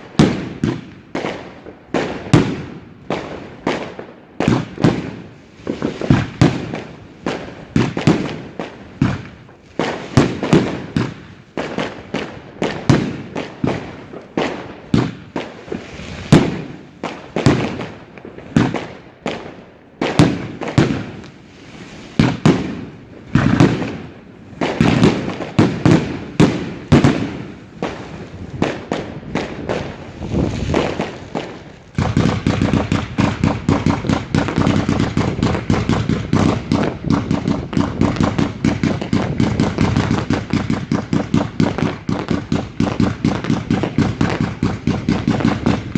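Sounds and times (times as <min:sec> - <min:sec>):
fireworks banging: 0:00.0 - 0:45.9.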